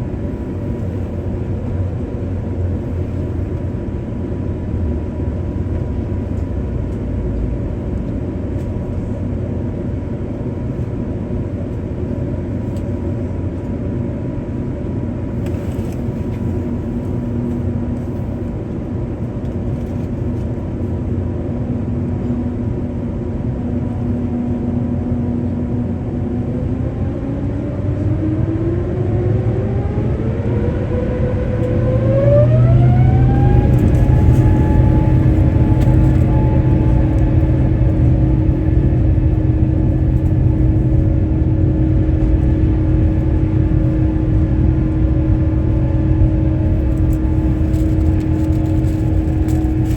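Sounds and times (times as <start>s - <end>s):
aircraft cabin rumble: 0.0s - 49.9s
jet engines spooling up: 26.3s - 49.9s.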